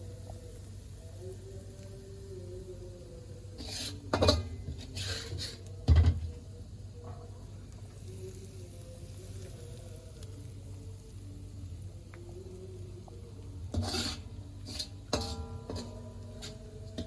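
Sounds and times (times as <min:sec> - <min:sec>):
low steady hum: 0:00.0 - 0:17.0
utensil scraping a pan: 0:03.6 - 0:06.2, 0:13.7 - 0:17.0.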